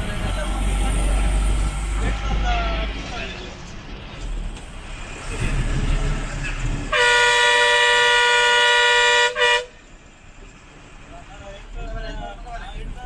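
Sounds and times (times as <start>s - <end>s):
moving bus running noise: 0.0s - 13.0s
bus horn: 6.9s - 9.9s.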